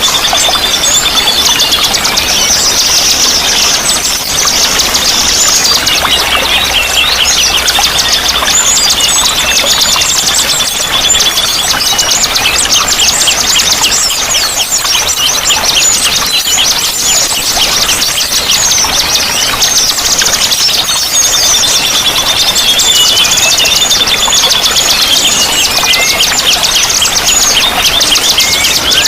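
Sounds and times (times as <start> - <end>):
songbirds singing: 0.0 - 29.0.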